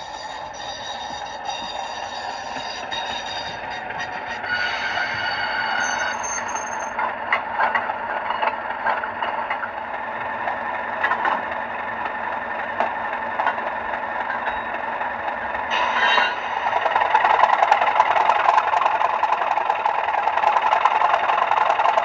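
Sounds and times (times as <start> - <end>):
high squeal: 0.0 - 7.0, 15.7 - 18.5
diesel engine sound from small speaker: 0.0 - 22.0.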